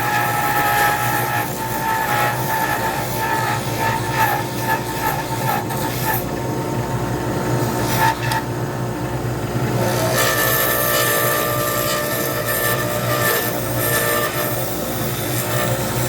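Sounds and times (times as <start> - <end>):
tool scraping spinning resin: 0.0 - 6.3, 9.8 - 16.0
lathe humming: 0.0 - 16.0.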